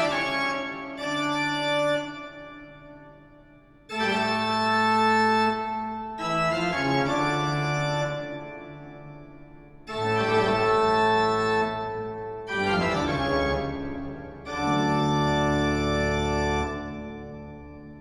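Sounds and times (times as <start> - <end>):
organ chords: 0.0 - 18.0.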